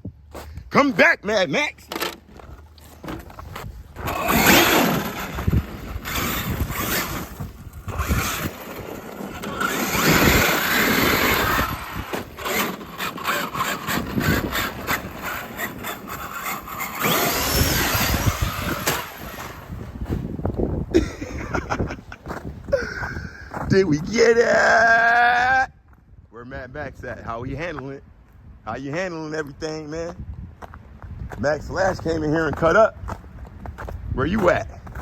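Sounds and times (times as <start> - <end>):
tyres scrabbling: 0.3 - 24.9, 31.9 - 35.0
electric motor whining: 1.9 - 20.3.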